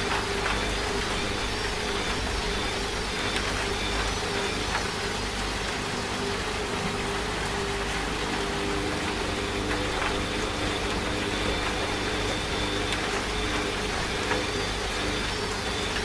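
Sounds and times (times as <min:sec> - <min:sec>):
rain hissing: 0:00.0 - 0:16.0
washing machine motor hum: 0:00.0 - 0:16.0.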